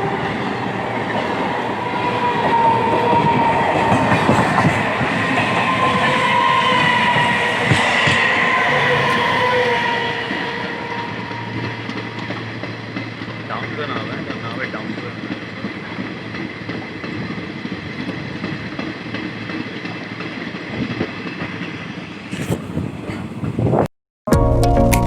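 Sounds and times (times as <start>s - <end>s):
train wheels clicking on track: 0.0s - 23.6s
thin steady squeal: 5.3s - 12.9s.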